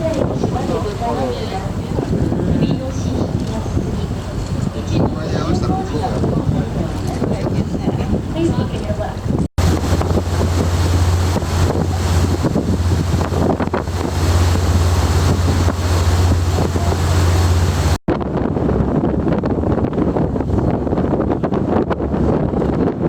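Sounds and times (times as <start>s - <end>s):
wind buffeting microphone: 0.0s - 23.0s
boat engine droning: 9.6s - 18.0s
rushing water: 9.6s - 18.0s.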